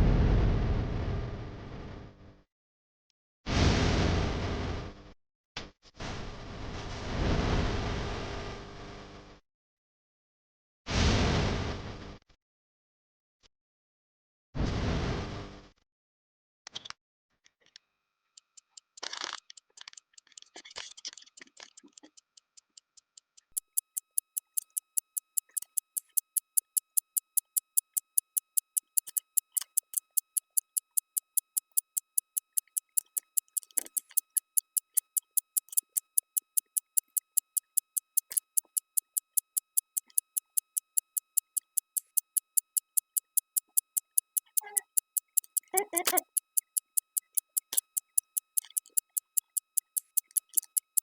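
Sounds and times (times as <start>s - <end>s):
fast clock ticking: 23.5s - 51.0s.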